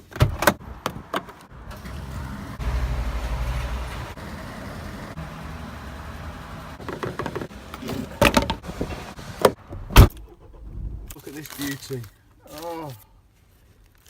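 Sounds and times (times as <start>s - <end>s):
car engine humming: 0.6s - 11.1s
loud thump: 9.5s - 11.1s.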